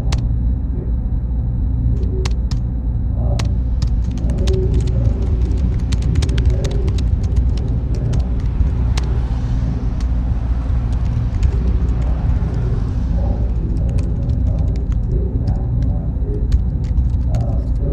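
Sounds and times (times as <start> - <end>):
low machine hum: 0.0 - 17.9
sharp clicks: 3.4 - 9.2.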